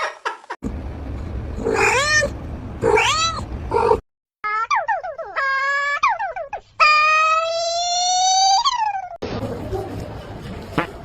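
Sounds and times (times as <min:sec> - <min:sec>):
low rumbling noise: 0:00.6 - 0:04.0
cat meowing: 0:01.7 - 0:04.0.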